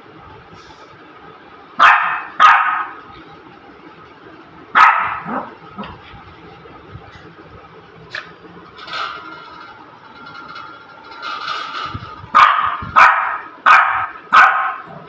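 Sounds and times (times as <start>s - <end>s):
puppy barking: 1.8s - 3.0s, 4.8s - 6.0s, 12.3s - 15.0s.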